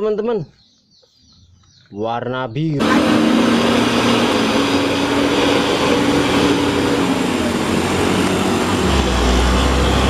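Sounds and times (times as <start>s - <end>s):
vehicle engine running: 2.8s - 10.0s.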